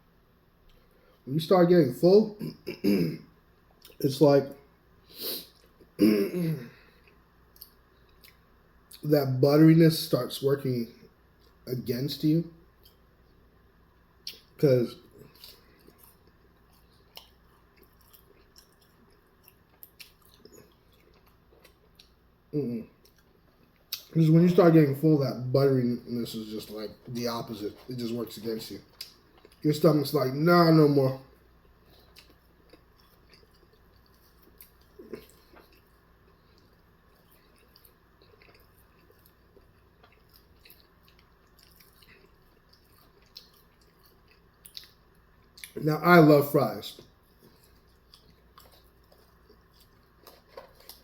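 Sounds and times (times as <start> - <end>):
chewing food: 14.2 - 22.3, 22.9 - 24.2, 26.2 - 29.8, 31.2 - 45.8, 46.9 - 51.0.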